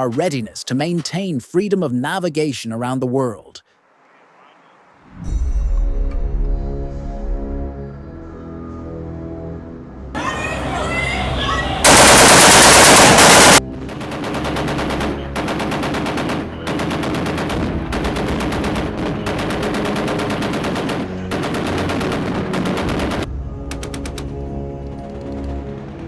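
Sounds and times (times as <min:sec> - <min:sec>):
automatic gun firing bursts: 0:11.8 - 0:23.3.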